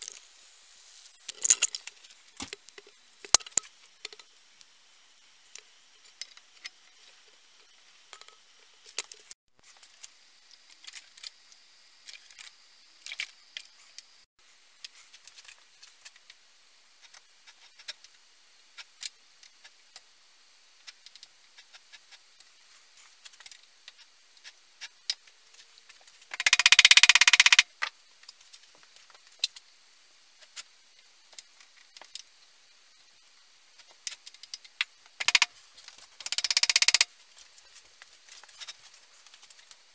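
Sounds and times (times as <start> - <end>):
metal parts and tools clinking: 1.2 - 4.3.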